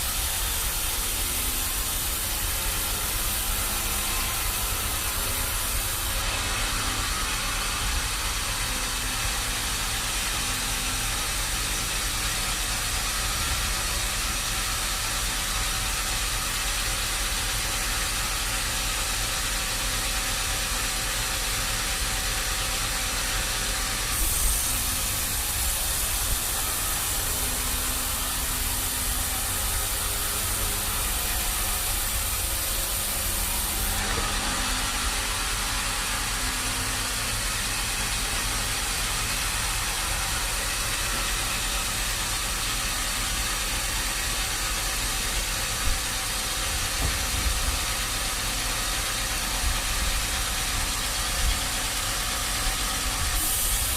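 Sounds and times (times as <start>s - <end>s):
constant hiss: 0.0s - 8.8s, 24.0s - 47.0s
sawmill machinery engine rumble: 0.0s - 53.9s.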